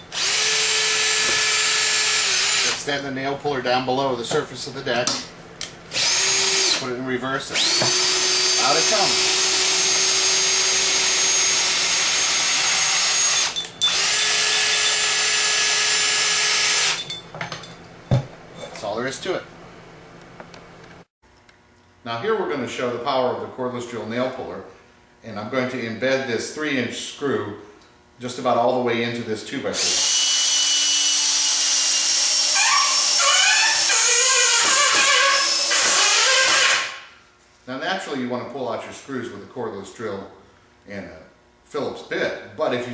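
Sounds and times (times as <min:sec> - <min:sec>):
cordless drill whining: 0:00.0 - 0:02.8, 0:05.9 - 0:06.8, 0:07.6 - 0:17.0, 0:29.8 - 0:37.0.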